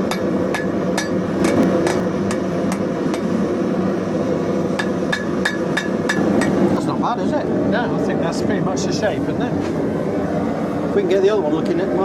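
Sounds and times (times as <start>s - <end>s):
hammer tapping hot steel: 0.0s - 3.3s, 4.8s - 6.6s.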